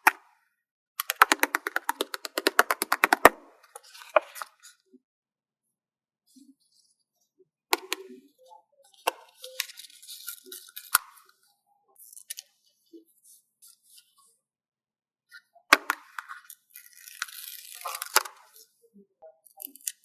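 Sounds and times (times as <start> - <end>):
stickers tapping and clicking: 1.0 - 3.4.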